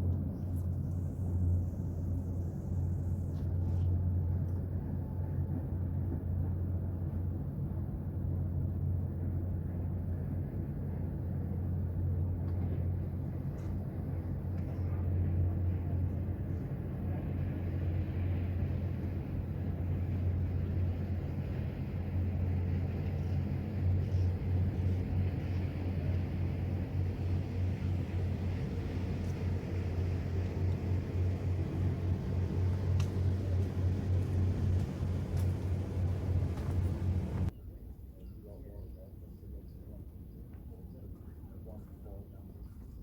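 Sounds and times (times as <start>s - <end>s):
even hum: 24.0s - 37.5s
low rumble: 27.0s - 37.5s.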